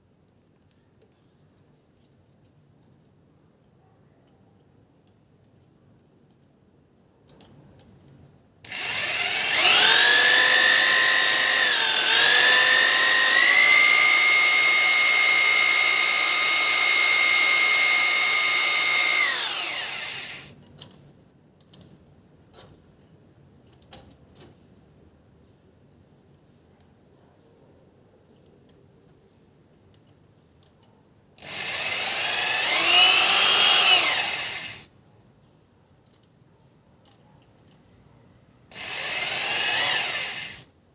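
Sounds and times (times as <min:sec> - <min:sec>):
electric drill whining: 0:08.7 - 0:20.5, 0:31.4 - 0:34.8, 0:38.7 - 0:40.6.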